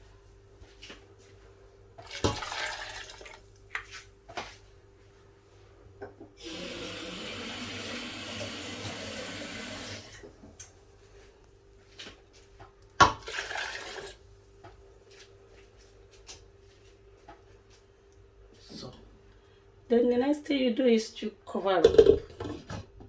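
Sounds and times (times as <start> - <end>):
water pouring into a pot: 2.0 - 3.5, 6.4 - 10.2, 13.1 - 14.2.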